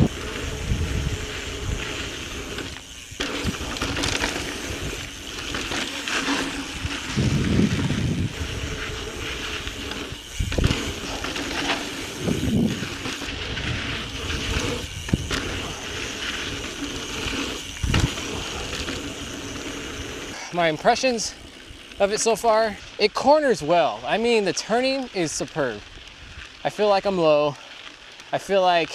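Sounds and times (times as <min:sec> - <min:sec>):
bike tyre and drivetrain rattle: 0:00.0 - 0:28.9
bike knocking over rocks: 0:02.1 - 0:08.7, 0:09.4 - 0:19.9.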